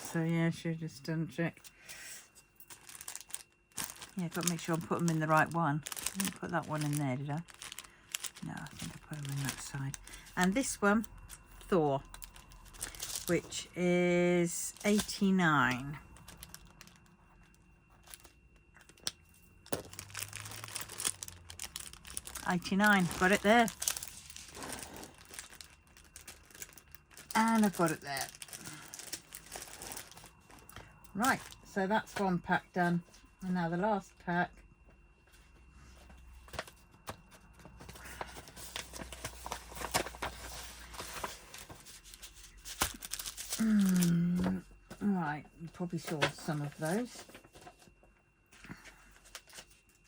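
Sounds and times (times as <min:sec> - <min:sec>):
paper crinkling and rustling: 0:02.6 - 0:13.6, 0:14.7 - 0:17.1, 0:18.0 - 0:31.7, 0:36.1 - 0:45.0, 0:46.0 - 0:48.0, 0:48.7 - 0:50.0.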